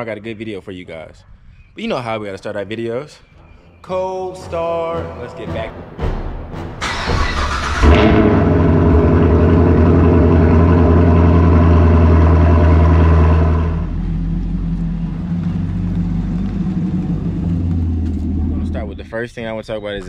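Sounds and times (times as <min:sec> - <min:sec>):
car engine starting and idling: 0:06.7 - 0:19.1.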